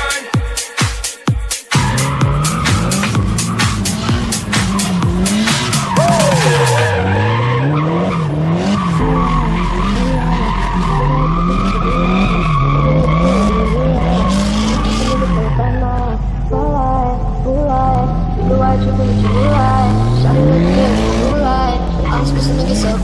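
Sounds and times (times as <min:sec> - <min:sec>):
tyres screeching: 0:01.7 - 0:16.0
car engine revving: 0:01.7 - 0:23.0.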